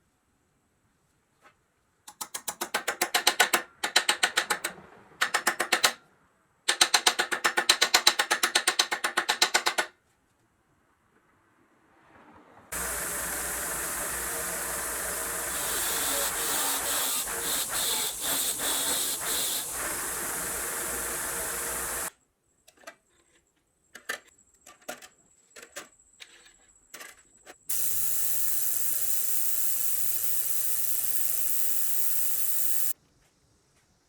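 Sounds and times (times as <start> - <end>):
compressed air tool hissing: 12.7 - 22.1, 27.7 - 33.0.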